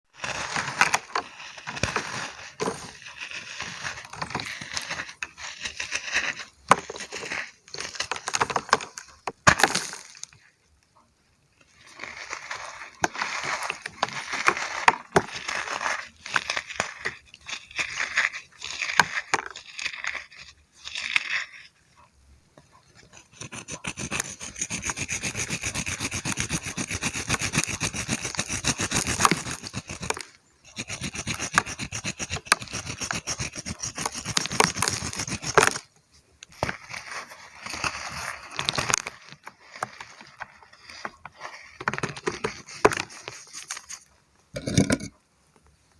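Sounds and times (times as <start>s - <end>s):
brittle chunks crunching: 0.2s - 10.5s.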